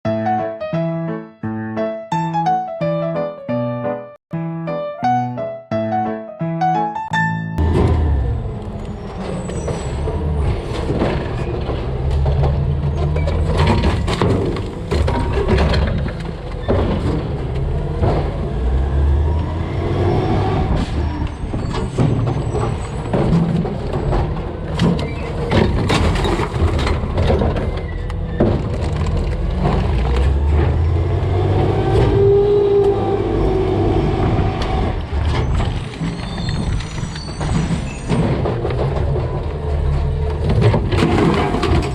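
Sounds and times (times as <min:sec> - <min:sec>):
garbage truck running: 0:07.3 - 0:41.9
garbage clanking into hopper: 0:07.6 - 0:19.3, 0:20.6 - 0:41.9.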